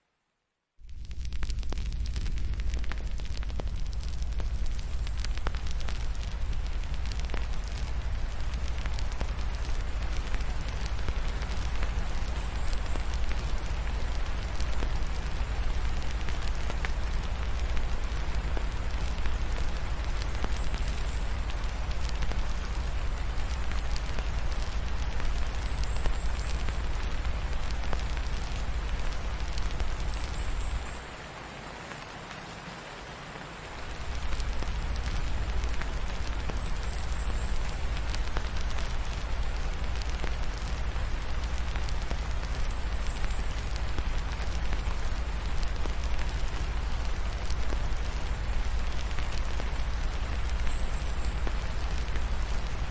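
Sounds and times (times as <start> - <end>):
deep low rumble: 0.8 - 30.9
rain falling: 0.8 - 52.9
wood fire crackling: 0.8 - 52.9.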